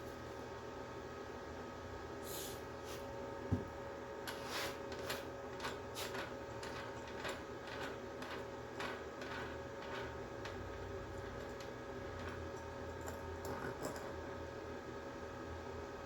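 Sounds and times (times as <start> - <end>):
welder electrical hum: 0.0 - 16.0
clicks and rattles of wire feed: 4.9 - 14.1.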